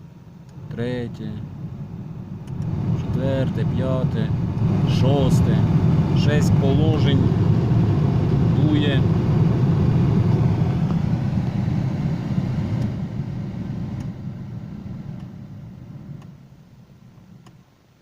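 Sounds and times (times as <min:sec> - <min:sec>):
heater blower fan rushing air: 0:00.0 - 0:18.0.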